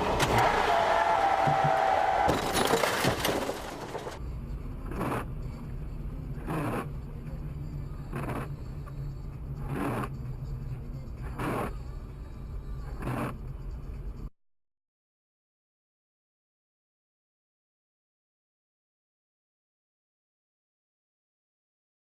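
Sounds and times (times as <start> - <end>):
car driving rumble: 0.0 - 14.3.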